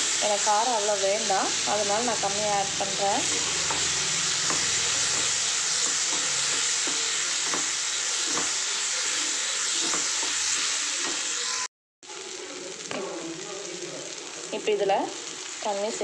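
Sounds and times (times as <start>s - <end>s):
masala sizzling in a pan: 0.0s - 16.0s
spatula scraping a pan: 2.1s - 11.7s.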